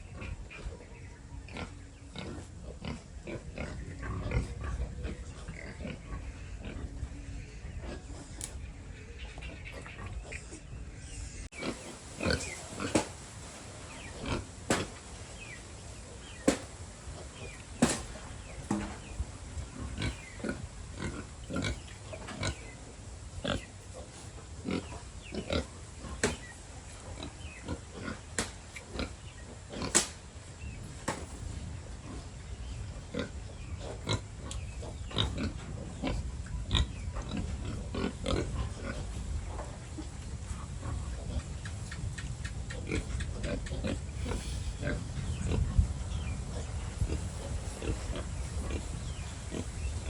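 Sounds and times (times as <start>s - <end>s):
pigs grunting: 0.0s - 13.2s, 13.9s - 30.2s, 30.8s - 50.0s
sharp clicks and smacks: 29.9s - 30.2s.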